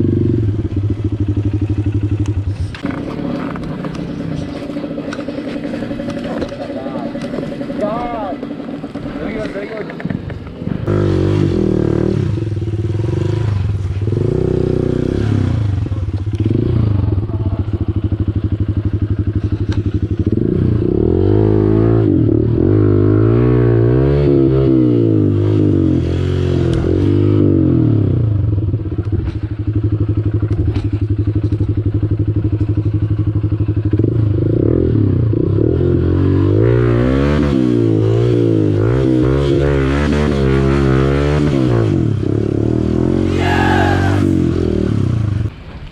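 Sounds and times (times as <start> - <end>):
motorcycle engine revving: 0.0 - 32.6, 33.4 - 45.5
engine clatter: 0.8 - 10.9.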